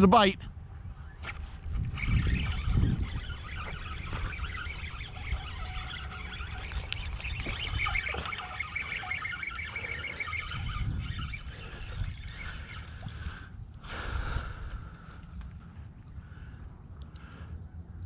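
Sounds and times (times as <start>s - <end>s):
birds chirping and chattering: 1.9s - 14.1s.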